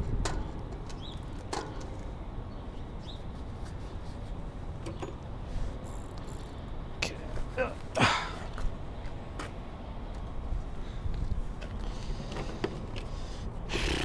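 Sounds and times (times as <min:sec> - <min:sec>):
bicycle handling clicks and taps: 0:00.1 - 0:02.1, 0:04.8 - 0:06.7.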